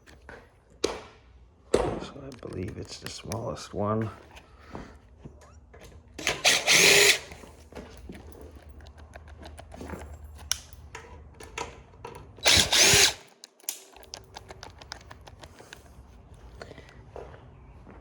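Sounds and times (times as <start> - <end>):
tools and parts clicking: 5.8 - 16.8
power drill motor whine: 6.2 - 7.6, 12.4 - 13.3.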